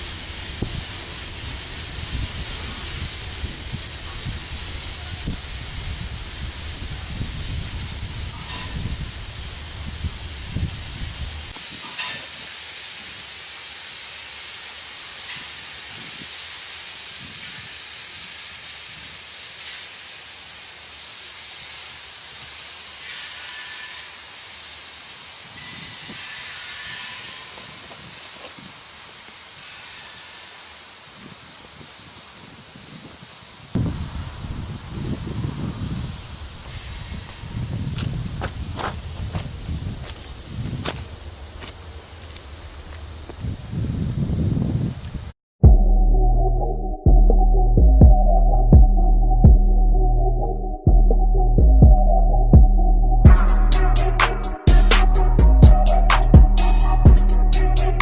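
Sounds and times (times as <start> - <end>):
train wheels rumbling on rails: 0.0 - 12.5
steady hiss: 0.0 - 45.4, 53.3 - 58.0.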